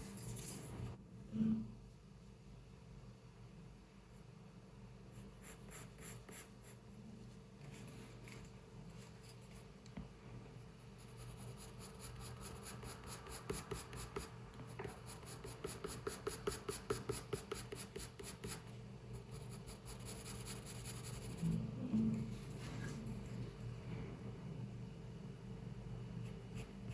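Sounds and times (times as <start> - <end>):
pencil scratching on paper: 5.1 - 6.8, 10.9 - 21.5.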